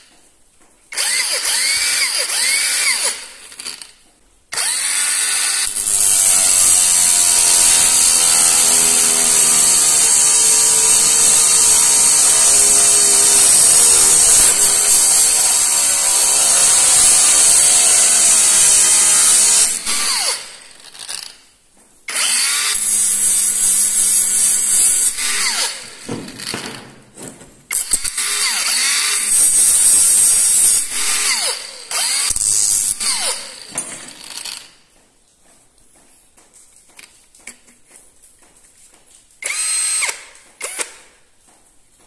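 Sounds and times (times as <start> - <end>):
cordless power tool motor: 1.0 - 3.9, 4.6 - 21.3, 22.1 - 26.7, 27.7 - 34.7, 39.4 - 41.0.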